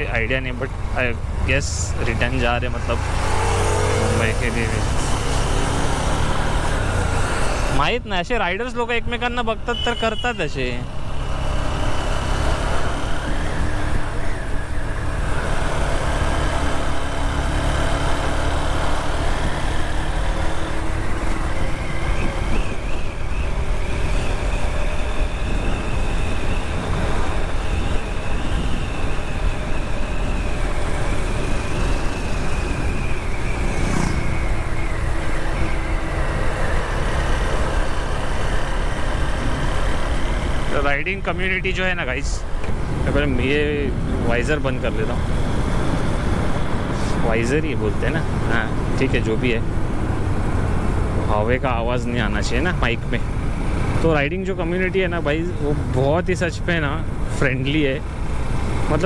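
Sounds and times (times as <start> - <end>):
engine whine wavering: 10.9 - 59.0
wind rush on microphone: 12.8 - 15.5, 19.2 - 40.8, 45.1 - 47.5.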